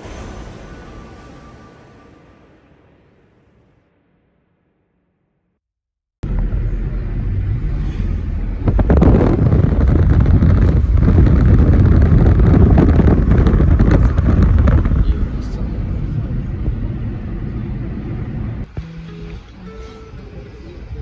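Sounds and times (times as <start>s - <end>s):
car driving rumble: 6.2s - 21.0s.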